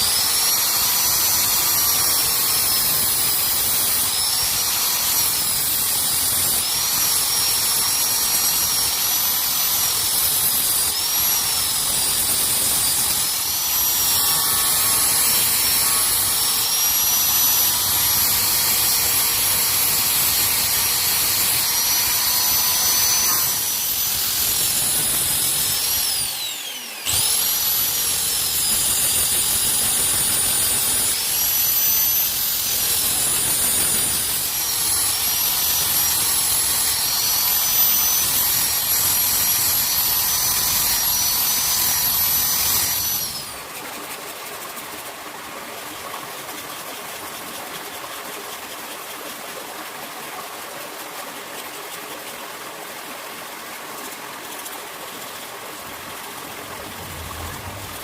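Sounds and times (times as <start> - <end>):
electric grinder on steel: 0.0 - 43.8, 56.2 - 58.0.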